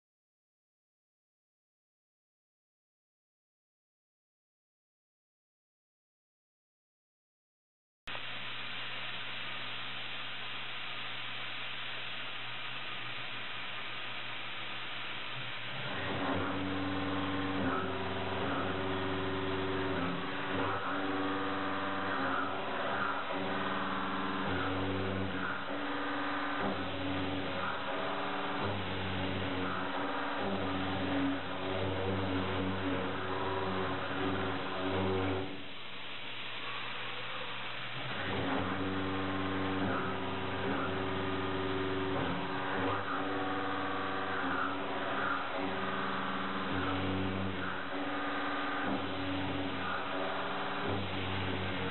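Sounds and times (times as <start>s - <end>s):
milling cutter humming on steel: 15.6s - 35.6s, 37.9s - 51.9s.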